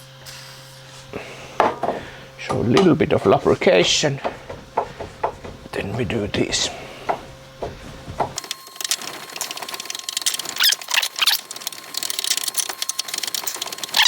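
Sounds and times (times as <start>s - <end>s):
metallic clicks and squeaks: 8.4s - 14.0s.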